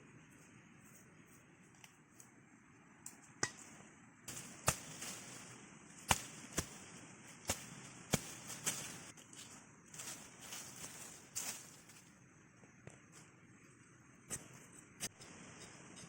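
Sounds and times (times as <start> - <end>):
digging tool striking ground: 3.4 - 3.7, 4.3 - 12.0.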